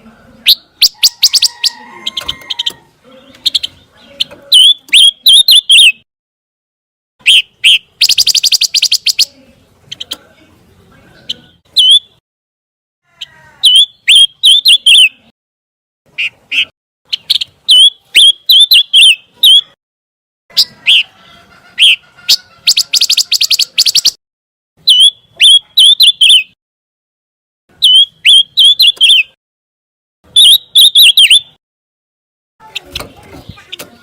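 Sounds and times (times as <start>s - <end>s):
bird chirping song: 0.0s - 6.1s, 7.2s - 12.2s, 13.2s - 15.3s, 16.1s - 19.8s, 20.5s - 24.2s, 24.8s - 26.6s, 27.7s - 29.4s, 30.3s - 31.6s
bird trill: 0.4s - 6.0s, 7.2s - 10.2s, 11.2s - 12.2s, 13.2s - 15.3s, 16.1s - 19.8s, 20.5s - 24.2s, 24.8s - 26.6s, 27.7s - 29.4s, 30.3s - 31.6s.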